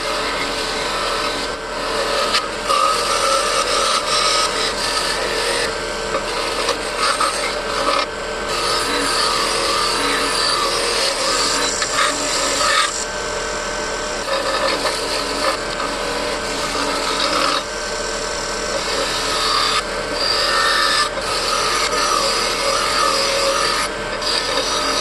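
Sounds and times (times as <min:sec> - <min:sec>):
rasping scrape on metal pliers: 0:00.2 - 0:13.0, 0:14.3 - 0:17.7, 0:18.7 - 0:25.0.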